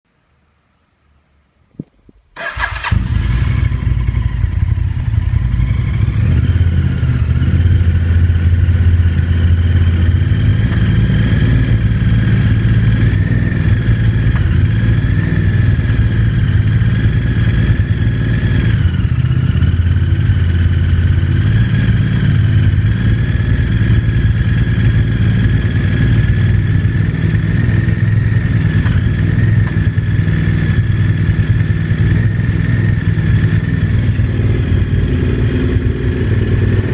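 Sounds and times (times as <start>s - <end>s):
motorcycle engine starting: 2.3s - 36.9s
engine idling with knocking: 26.3s - 32.3s.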